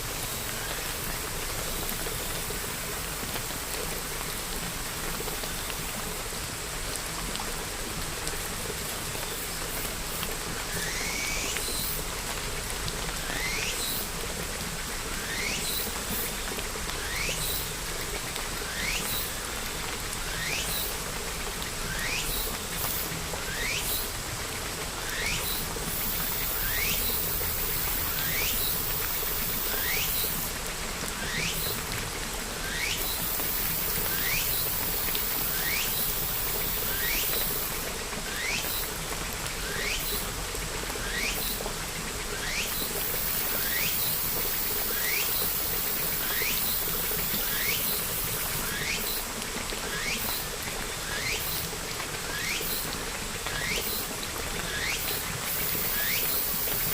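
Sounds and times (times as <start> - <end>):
steady rainfall: 0.0 - 56.9.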